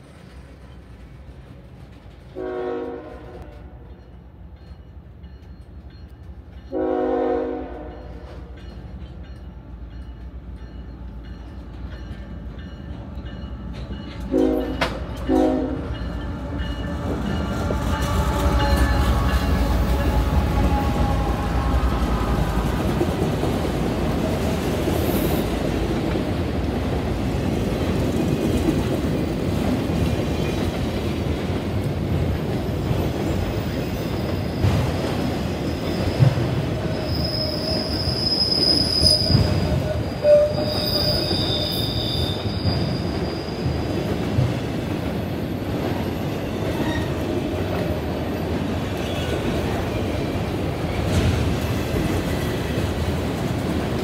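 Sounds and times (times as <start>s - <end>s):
train rumbling past: 0.0s - 54.0s
locomotive horn blasts: 2.4s - 3.7s, 6.7s - 8.3s, 14.3s - 16.0s, 39.8s - 41.5s.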